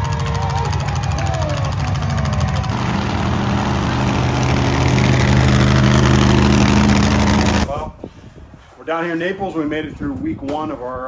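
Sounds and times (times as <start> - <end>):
vehicle engine running: 0.0 - 7.7.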